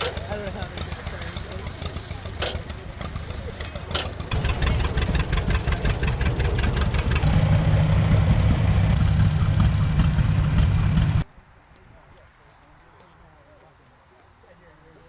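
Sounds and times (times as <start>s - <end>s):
tractor engine running: 0.0s - 11.2s.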